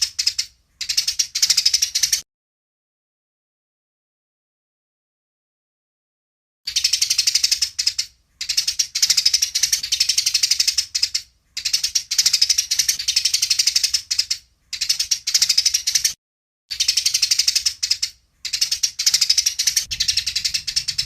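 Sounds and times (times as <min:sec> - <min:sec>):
sparrows chattering: 0:00.0 - 0:02.2, 0:06.7 - 0:21.0.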